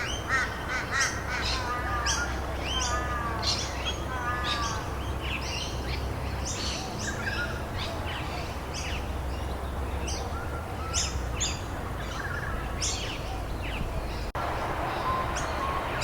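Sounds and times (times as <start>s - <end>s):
background hiss: 0.0s - 16.0s
songbirds chirping: 0.0s - 16.0s.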